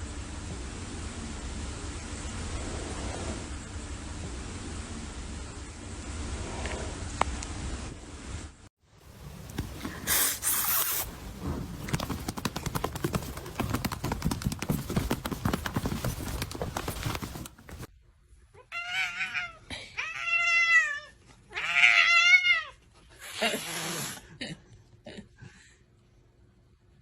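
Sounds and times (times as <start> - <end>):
busy rustling: 9.0 - 17.9
rapid clicking: 11.1 - 17.9.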